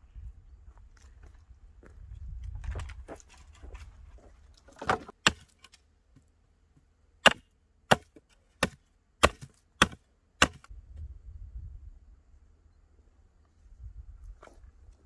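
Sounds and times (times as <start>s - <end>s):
hand tool chopping wood: 4.8s - 5.8s, 7.2s - 10.7s.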